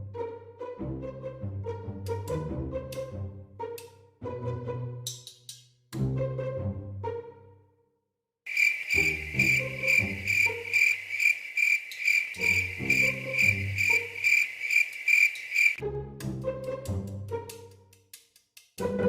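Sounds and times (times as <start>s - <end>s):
low background music: 0.0s - 7.7s, 15.8s - 18.2s, 18.8s - 19.0s
cricket chirping: 8.5s - 15.8s.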